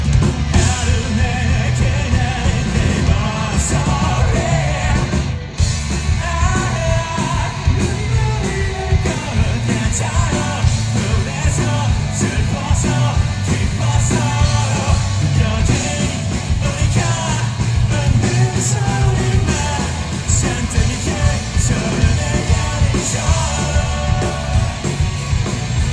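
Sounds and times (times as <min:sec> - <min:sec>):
loud rock music: 0:00.0 - 0:25.9
person singing and yelling: 0:00.6 - 0:05.3, 0:06.1 - 0:25.0.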